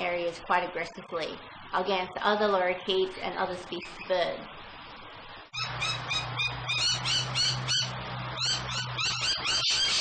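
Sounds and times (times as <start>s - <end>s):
low steady hum: 0.0s - 10.0s
lorikeets screeching and chattering: 5.5s - 10.0s.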